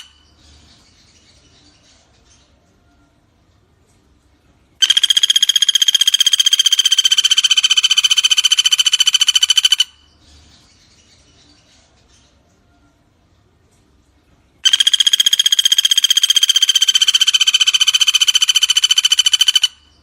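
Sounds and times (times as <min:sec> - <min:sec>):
woodpecker rapid trill: 0:00.0 - 0:00.2, 0:04.8 - 0:10.1, 0:14.6 - 0:20.0.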